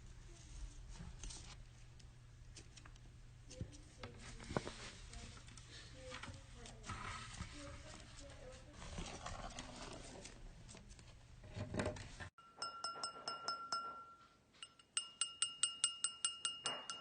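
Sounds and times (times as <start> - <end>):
small bell-like chime ringing: 12.4 - 17.0.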